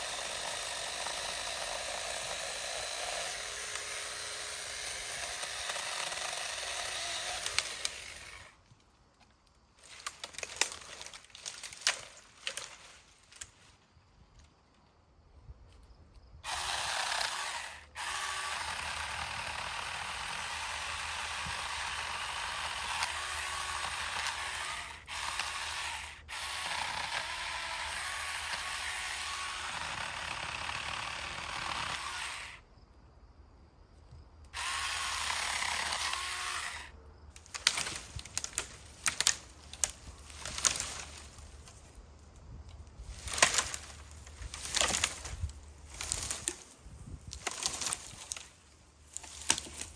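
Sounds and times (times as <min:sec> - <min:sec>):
electric chainsaw cutting: 0:00.0 - 0:08.6, 0:16.4 - 0:32.6, 0:34.6 - 0:41.4
branches cracking and rustling: 0:03.7 - 0:14.9, 0:34.6 - 0:49.9.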